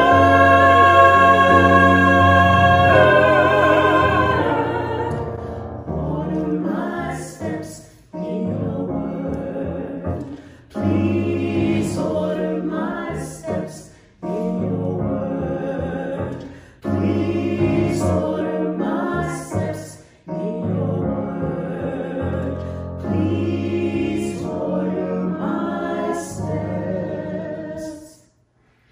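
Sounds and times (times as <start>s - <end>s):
sustained low accompanying notes: 0.0s - 5.9s
church choir singing: 0.0s - 28.4s.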